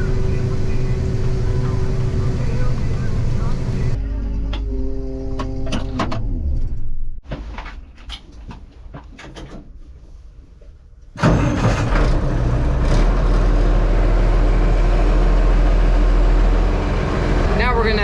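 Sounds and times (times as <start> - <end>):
tractor engine running: 0.0 - 5.9, 11.2 - 18.0.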